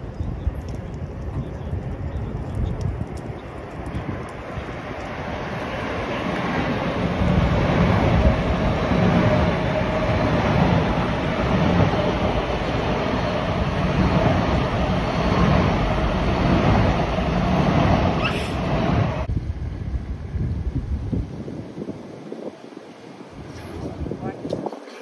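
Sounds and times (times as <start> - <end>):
train wheels rumbling on rail: 0.0 - 20.8.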